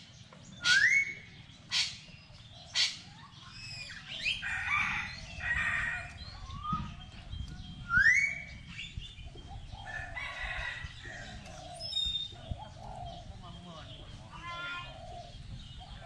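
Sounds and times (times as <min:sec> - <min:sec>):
birds calling: 0:00.0 - 0:16.0
sharply rising bird call: 0:00.6 - 0:07.1.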